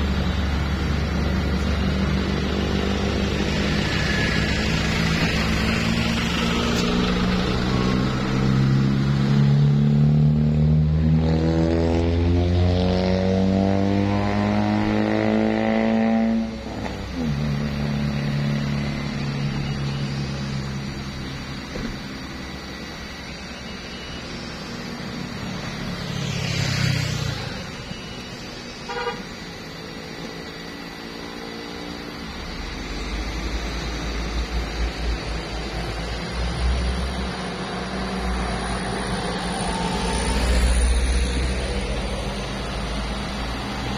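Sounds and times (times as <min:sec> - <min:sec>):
truck engine revving: 0:00.0 - 0:23.2, 0:32.0 - 0:43.9.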